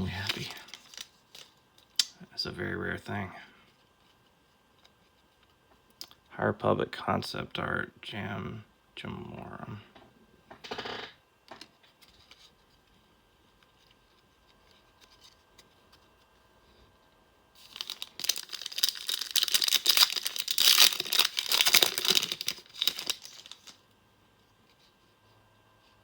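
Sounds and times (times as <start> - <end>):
foil wrapper crinkling and tearing: 0.0 - 2.1, 17.6 - 23.8.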